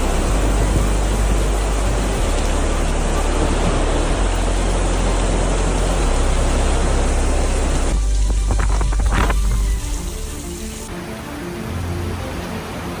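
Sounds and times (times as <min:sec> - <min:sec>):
wind buffeting on microphone: 0:00.0 - 0:11.0
storm wind and heavy rain: 0:00.0 - 0:13.0.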